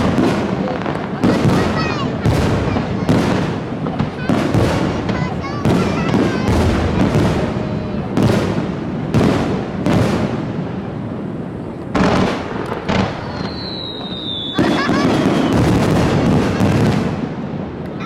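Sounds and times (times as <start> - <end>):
fireworks booming: 0.0 - 18.0
high falling whistle: 13.3 - 15.7.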